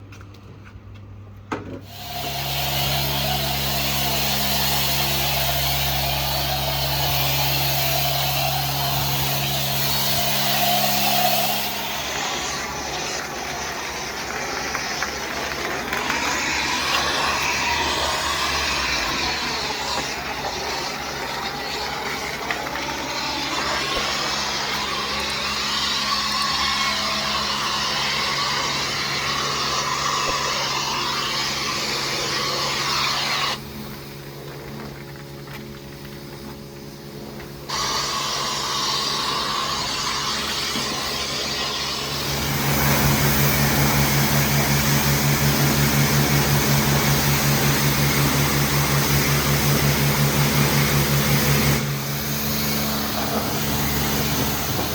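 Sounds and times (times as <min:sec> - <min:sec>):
pressure washer spray hissing: 0:01.8 - 0:33.8, 0:37.7 - 0:54.9
motor humming: 0:01.8 - 0:36.5, 0:37.2 - 0:54.9.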